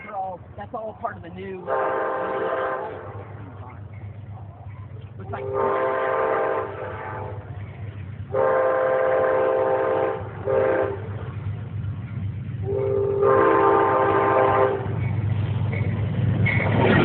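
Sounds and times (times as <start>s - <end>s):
moving train rumble: 0.0s - 17.0s
train air horn blasts: 1.7s - 3.2s, 5.3s - 7.4s, 8.3s - 11.1s, 12.6s - 15.0s.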